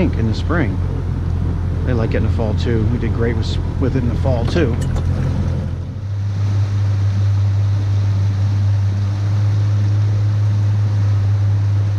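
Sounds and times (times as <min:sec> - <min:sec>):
water wash: 0:00.0 - 0:08.3
boat engine humming: 0:00.0 - 0:11.9.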